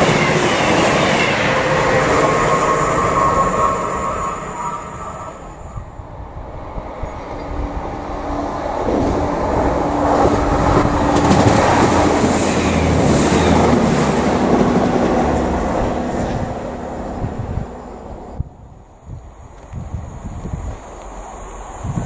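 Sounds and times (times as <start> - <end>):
diesel train passing at speed: 0.0 - 22.0
wheels rumbling over rail joints: 0.0 - 22.0.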